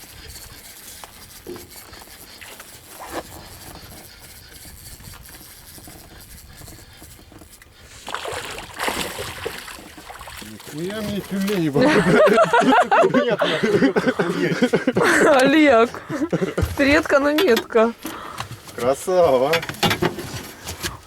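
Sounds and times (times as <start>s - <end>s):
water sloshing against boat: 7.4s - 21.0s
fish splashing: 7.9s - 13.0s.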